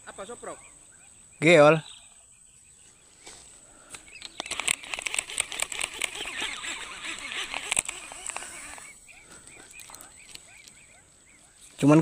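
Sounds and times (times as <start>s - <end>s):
fishing reel clicking and rattling: 4.2s - 9.0s.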